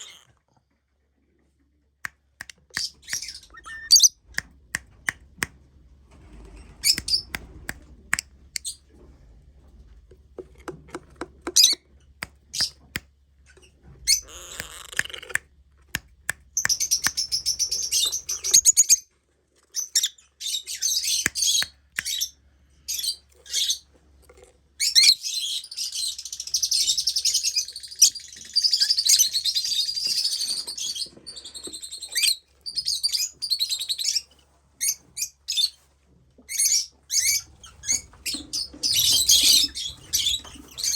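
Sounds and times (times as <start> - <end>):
small birds chirping: 2.4 - 5.2, 6.8 - 8.8, 11.4 - 15.4, 16.0 - 19.1, 36.5 - 40.9.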